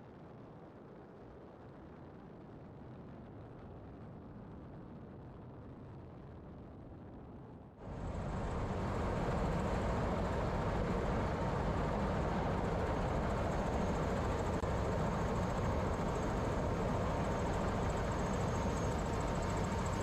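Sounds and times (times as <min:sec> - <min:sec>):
helicopter engine and rotor noise: 0:07.8 - 0:20.0
high turbine whine: 0:07.8 - 0:20.0.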